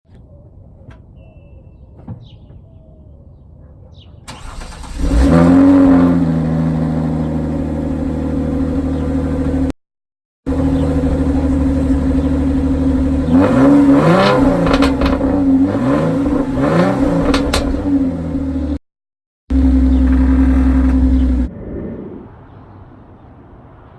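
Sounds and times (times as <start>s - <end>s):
car engine starting and revving: 4.3s - 9.7s, 10.5s - 18.8s, 19.5s - 21.5s.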